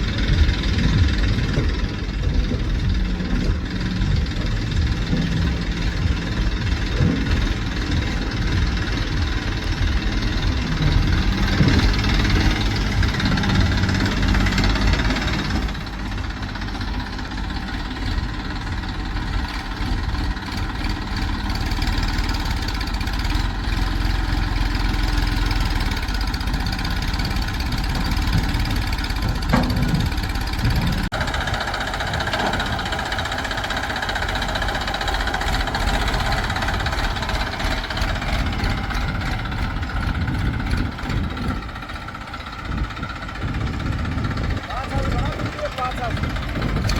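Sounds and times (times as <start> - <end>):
diesel engine droning: 0.0 - 46.9.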